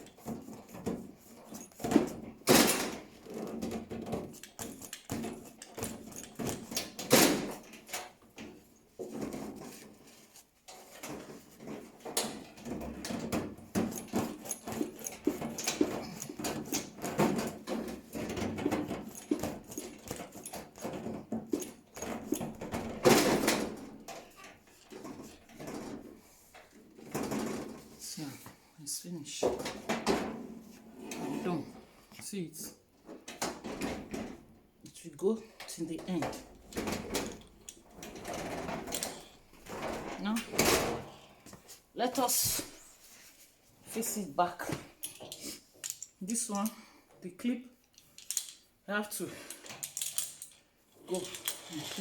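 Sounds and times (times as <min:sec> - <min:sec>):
rubber hose rubbing and creaking: 0:50.9 - 0:52.0.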